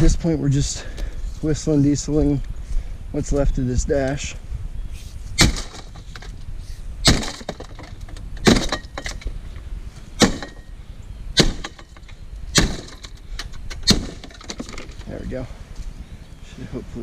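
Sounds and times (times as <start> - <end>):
debris cracking and clattering: 7.1 - 9.4.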